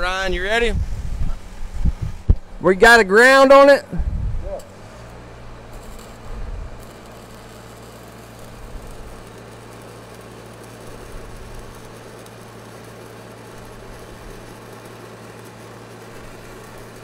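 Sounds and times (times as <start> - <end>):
diesel welder engine running: 0.0 - 17.0
welding arc crackling: 4.4 - 17.0.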